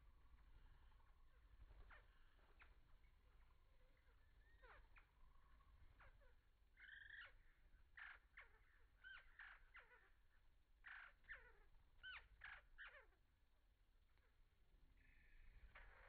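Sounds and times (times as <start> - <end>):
harsh rasping bird calls: 0.0 - 13.2
downward-sliding bird chirps: 0.2 - 10.1.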